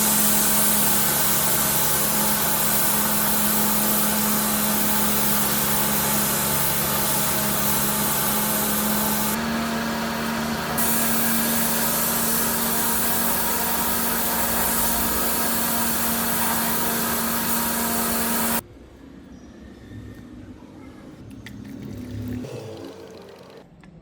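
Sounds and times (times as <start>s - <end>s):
machine whirring: 0.0s - 18.6s.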